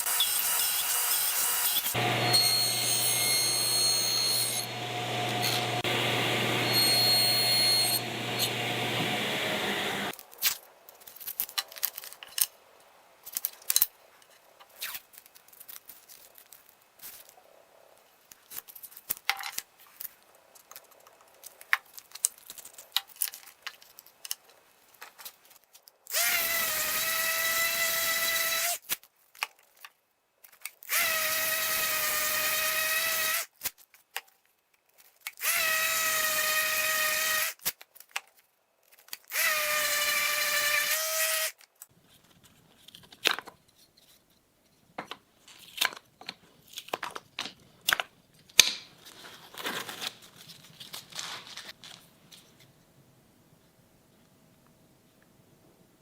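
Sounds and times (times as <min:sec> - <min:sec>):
power drill whining: 0:00.0 - 0:10.1.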